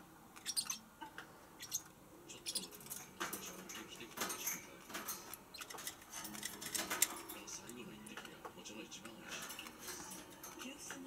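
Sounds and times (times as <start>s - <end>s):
parrot chirping and squeaking: 0.4s - 0.9s, 1.5s - 7.1s, 9.5s - 10.8s.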